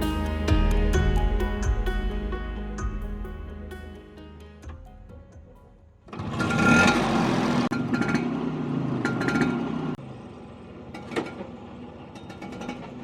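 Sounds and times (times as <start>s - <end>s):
scooter engine starting and running: 6.0s - 13.0s.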